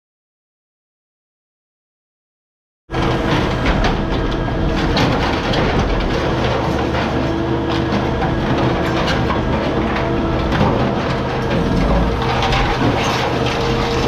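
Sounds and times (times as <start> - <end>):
vehicle engine hum: 7.9 - 14.0.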